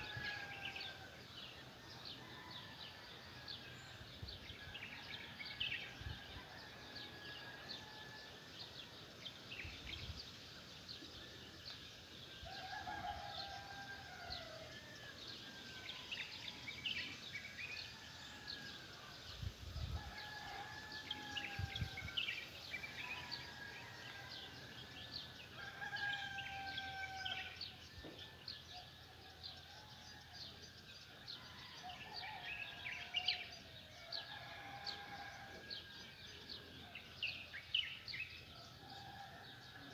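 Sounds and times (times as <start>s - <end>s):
rooster crowing: 0.0s - 1.0s, 12.5s - 15.1s, 20.0s - 22.3s, 25.6s - 27.6s, 31.4s - 36.0s.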